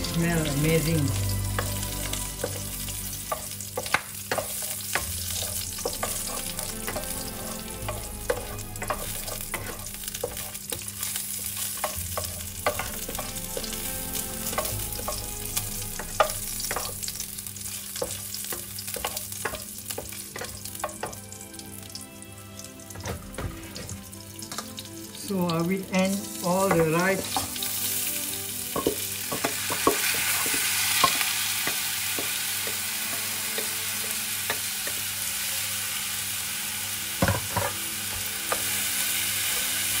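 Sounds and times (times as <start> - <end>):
food sizzling in hot oil: 0.0 - 40.0
wooden spatula scraping a pan: 2.4 - 15.2.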